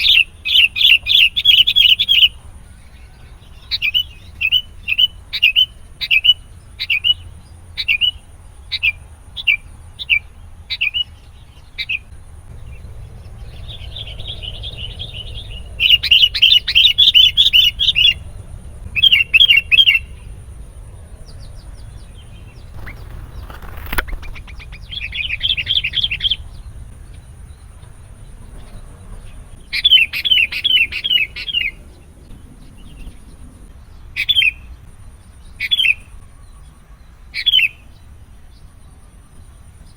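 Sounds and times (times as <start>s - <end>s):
bird chirping and chattering: 21.4s - 26.6s.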